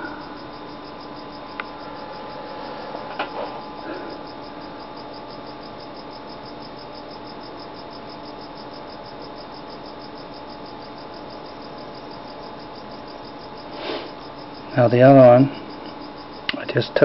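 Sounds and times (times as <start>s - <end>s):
low steady hum: 0.0s - 13.6s
crickets chirping: 0.0s - 17.0s.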